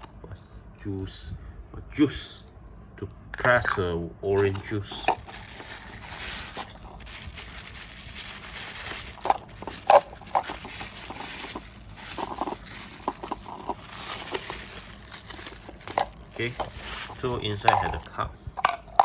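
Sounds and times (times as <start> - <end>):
plastic rustling and handling: 4.3 - 19.0.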